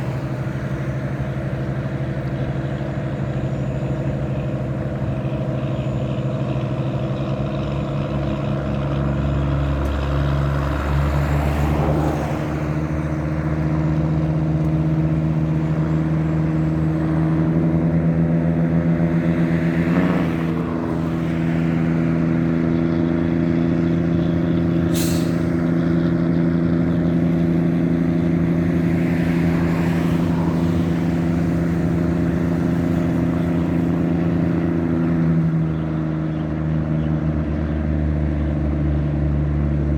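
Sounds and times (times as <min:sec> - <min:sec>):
boat diesel engine running: 0:00.0 - 0:19.4.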